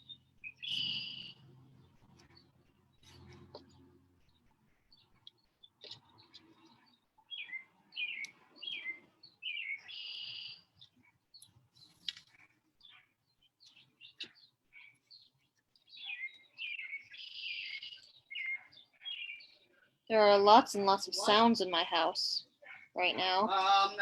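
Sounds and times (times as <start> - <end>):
buzzy bird trill: 0.0 - 10.8
songbirds chirping: 0.0 - 24.0.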